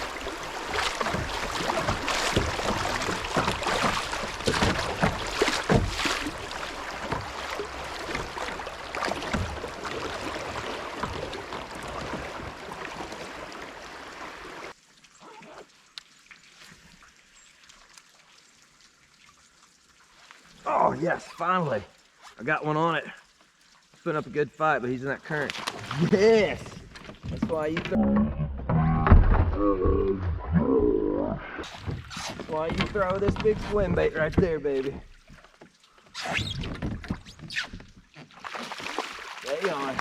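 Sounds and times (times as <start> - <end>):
creek water splashing: 0.0 - 28.0, 31.6 - 40.0
knocks against a kayak: 1.0 - 6.4.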